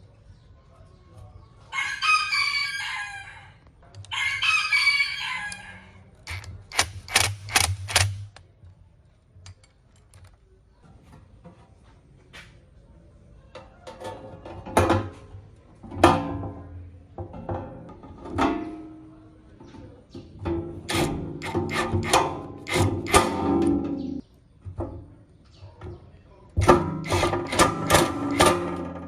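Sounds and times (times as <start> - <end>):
rooster crowing: 1.7 - 6.0.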